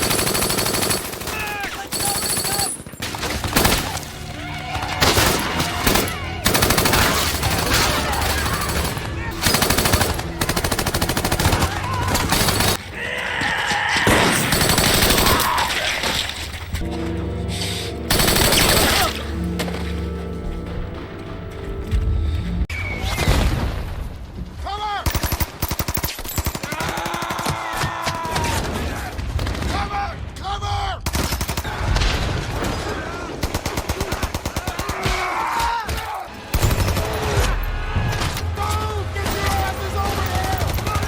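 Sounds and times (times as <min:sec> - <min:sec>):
rifles and machine guns firing: 0:00.0 - 0:12.8, 0:14.1 - 0:16.5, 0:18.1 - 0:19.3, 0:25.0 - 0:27.7, 0:31.0 - 0:31.8, 0:33.4 - 0:35.3, 0:36.5 - 0:37.7
film score with held notes: 0:00.0 - 0:13.4, 0:14.2 - 0:24.6, 0:36.0 - 0:41.0.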